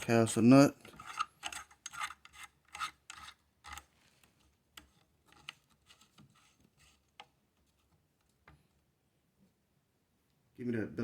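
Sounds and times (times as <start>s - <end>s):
metal rasp: 0.8s - 3.9s.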